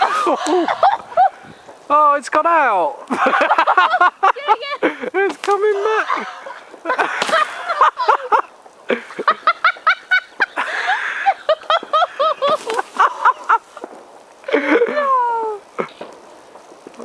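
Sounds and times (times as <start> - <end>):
people laughing hard: 0.0 - 1.4, 3.1 - 13.6
firework pops: 4.9 - 5.7, 6.4 - 7.6, 11.8 - 14.5, 15.8 - 17.0.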